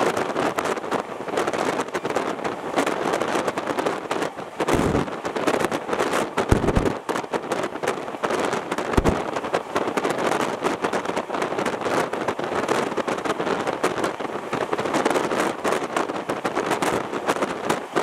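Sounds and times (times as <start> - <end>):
train track and wind rush: 0.0 - 18.0
low thud: 9.0 - 9.2.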